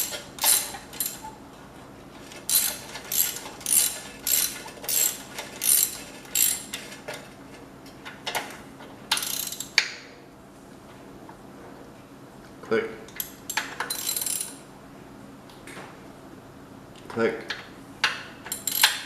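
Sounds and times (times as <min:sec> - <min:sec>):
socket ratchet ratcheting: 0:00.0 - 0:01.3, 0:02.5 - 0:06.7, 0:09.1 - 0:09.8, 0:18.5 - 0:19.0.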